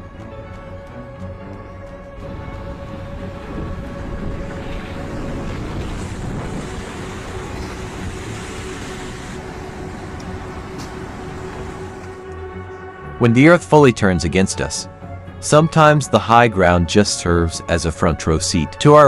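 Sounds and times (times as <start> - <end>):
wind buffeting microphone: 2.2 - 12.2
floodwater rushing and churning: 2.2 - 12.3.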